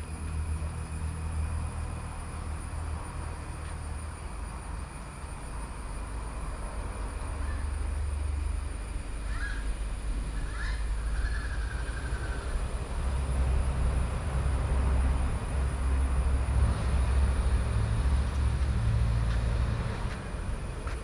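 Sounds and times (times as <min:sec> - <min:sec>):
bird calls and trill: 0:07.2 - 0:08.0, 0:09.2 - 0:12.7.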